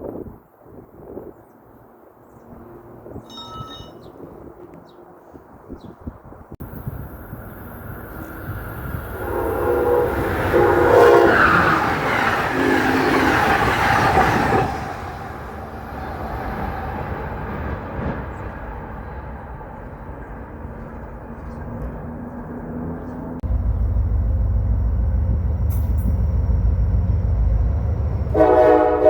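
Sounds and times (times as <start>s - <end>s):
rail noise: 0.6s - 29.0s
train rushing past: 6.6s - 29.0s
train horn blasts: 9.2s - 13.3s, 28.1s - 29.0s.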